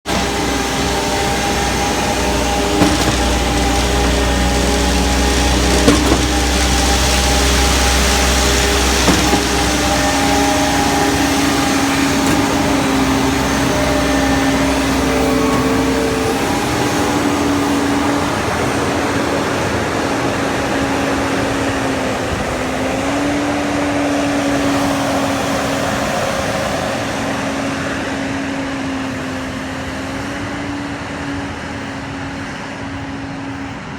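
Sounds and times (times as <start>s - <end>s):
concrete pump mechanical drone: 0.1s - 33.9s
light knocks: 1.3s - 16.6s.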